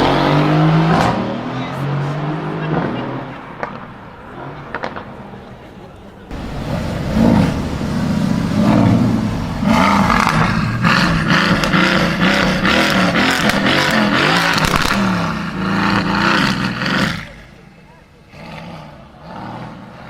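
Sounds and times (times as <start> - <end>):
exhaust crackling pops: 6.3 - 17.3
car engine revving: 6.3 - 20.0.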